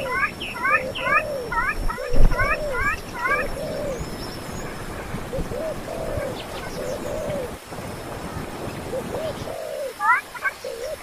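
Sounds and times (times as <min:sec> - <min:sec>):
bird giving short low calls: 0:00.0 - 0:07.6
steady background noise: 0:00.0 - 0:11.0.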